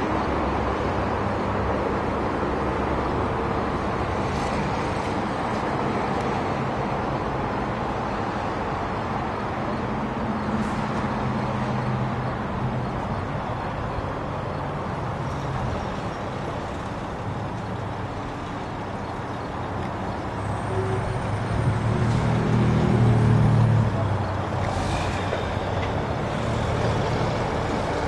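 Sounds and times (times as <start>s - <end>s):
diesel engine hum: 0.0s - 28.0s
train rushing past: 20.7s - 28.0s.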